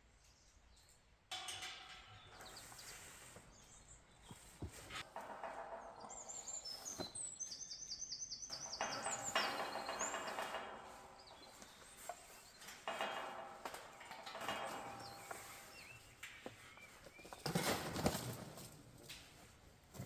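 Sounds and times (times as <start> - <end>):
songbird singing: 5.8 - 12.8, 15.0 - 17.5.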